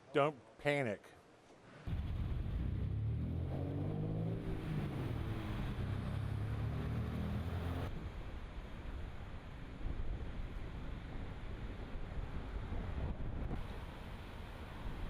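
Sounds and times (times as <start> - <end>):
engine running: 1.9 - 7.9
wind-like rushing noise: 1.9 - 15.0.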